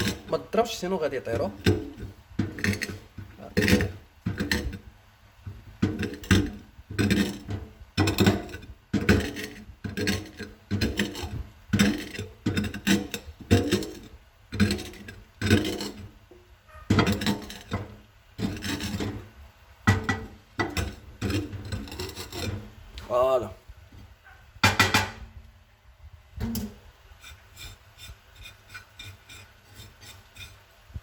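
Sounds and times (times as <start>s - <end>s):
glass grinding food in bowl: 0.0s - 4.9s, 5.6s - 16.2s, 16.9s - 19.2s, 19.9s - 22.6s, 27.3s - 30.6s.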